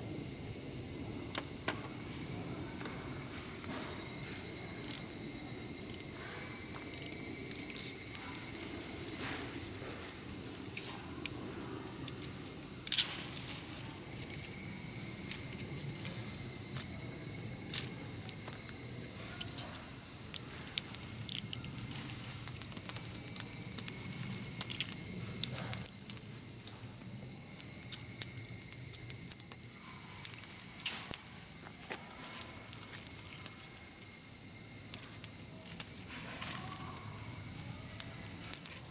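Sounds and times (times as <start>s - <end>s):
insects chorus: 0.0s - 38.9s
campfire pops and crackles: 1.2s - 8.1s, 16.9s - 38.9s.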